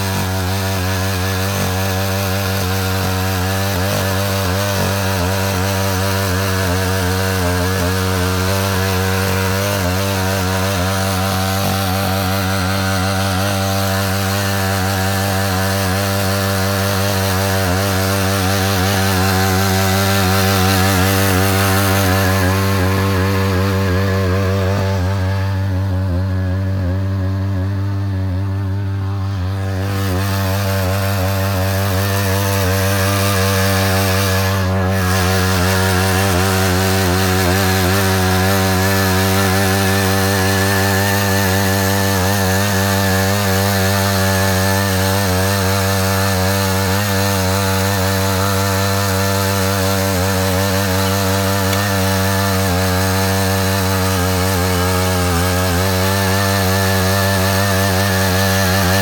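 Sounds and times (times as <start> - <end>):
tiller engine running: 0.0 - 59.0.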